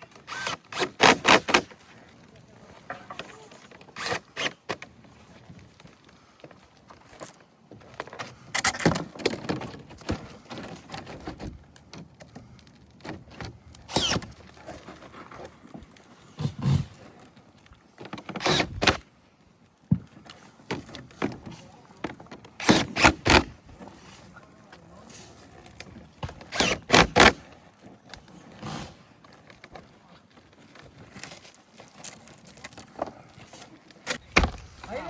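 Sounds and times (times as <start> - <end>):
power screwdriver whirring: 0.2 - 1.7, 4.0 - 4.6, 13.9 - 14.3, 18.3 - 19.0, 22.6 - 23.5, 26.4 - 27.4.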